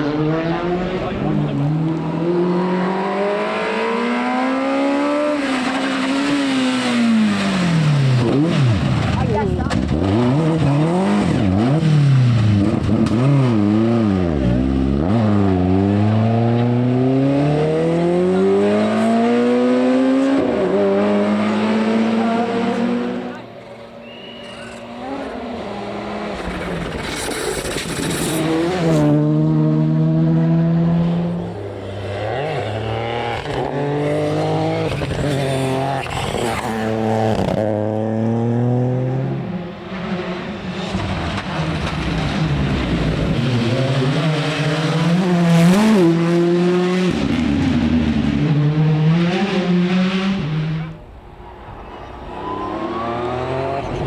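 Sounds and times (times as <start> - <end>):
car engine revving: 0.0 - 54.0
tyre noise: 22.4 - 29.2.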